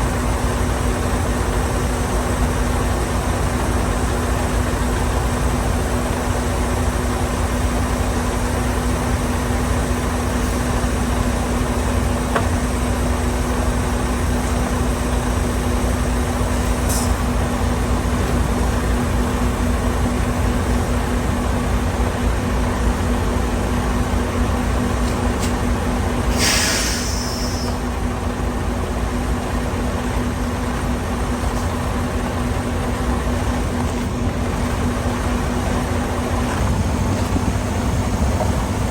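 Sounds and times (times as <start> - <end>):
road and wind noise: 0.0 - 38.9
truck engine drone: 0.0 - 38.9
short hiss: 26.3 - 27.8.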